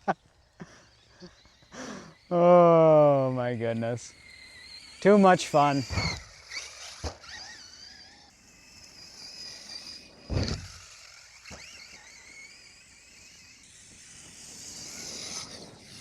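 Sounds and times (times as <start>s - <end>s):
electric motor whining: 0.0s - 16.0s
sharp thump: 10.3s - 10.8s.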